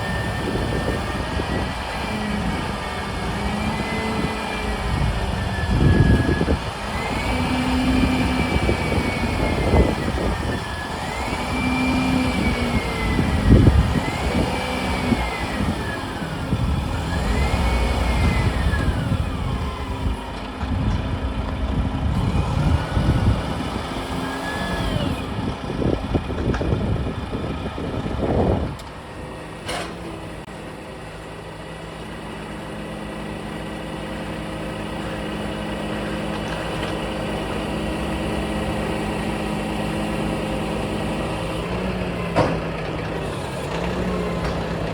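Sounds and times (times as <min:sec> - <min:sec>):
truck engine revving and idling: 0:00.0 - 0:44.9.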